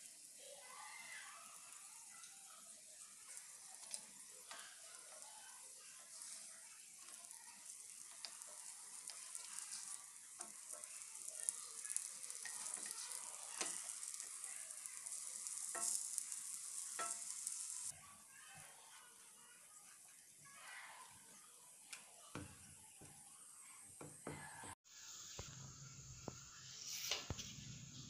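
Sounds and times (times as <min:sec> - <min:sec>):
sizzling in oil: 0:00.0 - 0:28.0.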